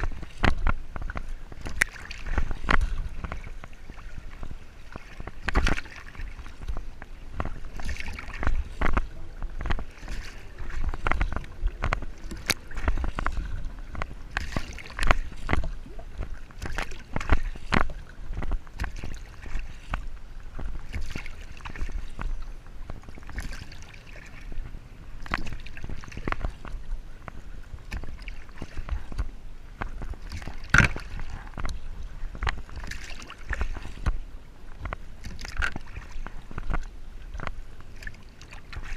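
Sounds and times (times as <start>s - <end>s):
paddle splashes: 0.0s - 38.9s
water sloshing against hull: 0.0s - 38.9s.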